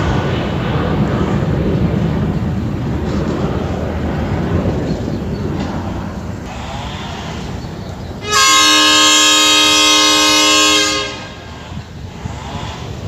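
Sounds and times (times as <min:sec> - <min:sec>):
background rumble: 0:00.0 - 0:08.6
train horn blast: 0:08.2 - 0:12.9.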